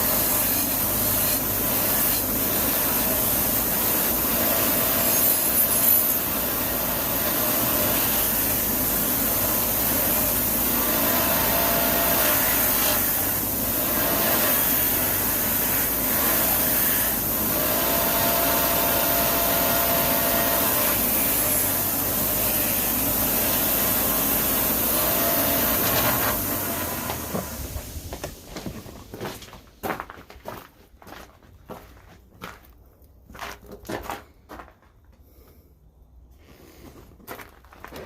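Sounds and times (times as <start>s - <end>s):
power tool motor running: 0.0s - 27.9s.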